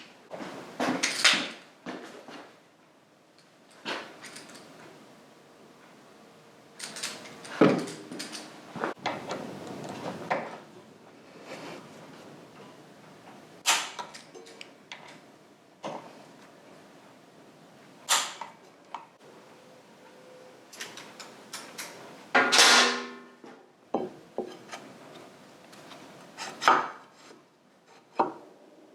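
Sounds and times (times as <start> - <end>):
tools and metal parts clunking: 3.7 - 4.9, 6.8 - 10.6, 13.7 - 15.2.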